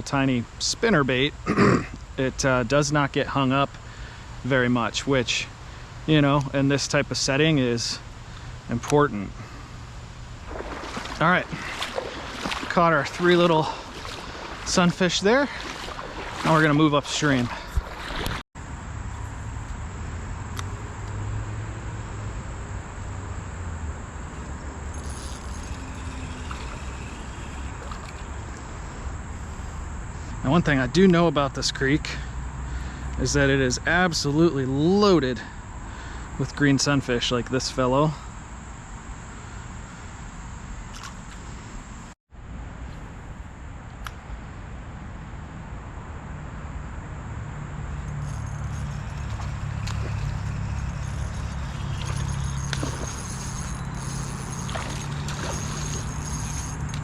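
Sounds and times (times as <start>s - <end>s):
faint insect chirring: 3.6s - 31.3s, 47.7s - 57.0s.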